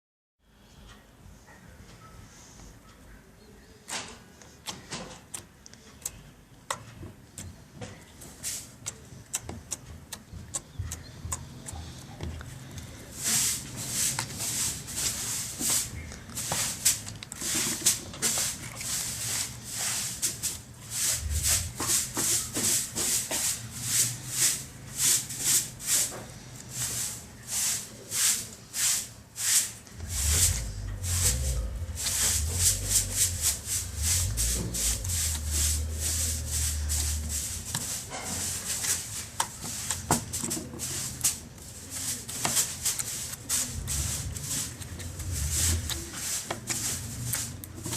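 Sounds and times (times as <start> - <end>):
low rumble: 20.9 - 22.1, 30.0 - 37.8.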